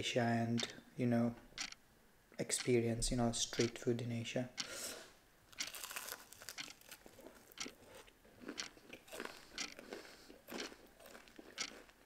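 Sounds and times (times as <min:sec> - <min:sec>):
crunchy chewing of fried chicken: 0:05.6 - 0:12.0.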